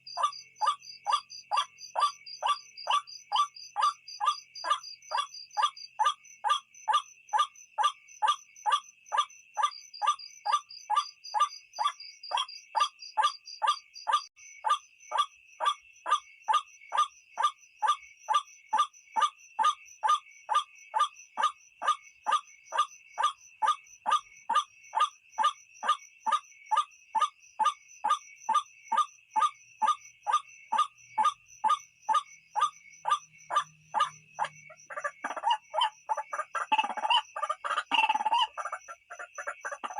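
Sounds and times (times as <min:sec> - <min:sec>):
waterhen harsh calls: 0:34.0 - 0:39.9.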